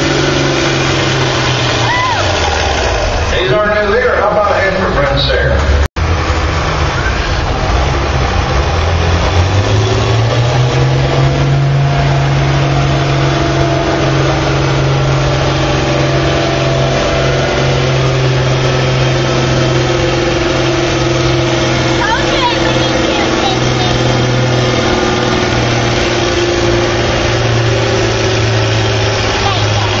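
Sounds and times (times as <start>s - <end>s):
tractor diesel engine under load: 0.0s - 30.0s.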